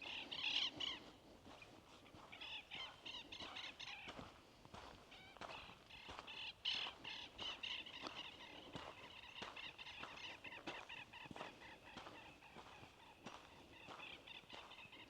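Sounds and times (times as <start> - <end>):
birds calling: 5.4 - 15.0.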